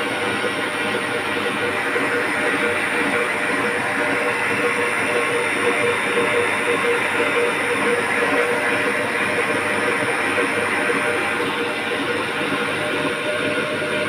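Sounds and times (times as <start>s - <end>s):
electric mixer motor whirring: 0.0s - 14.0s.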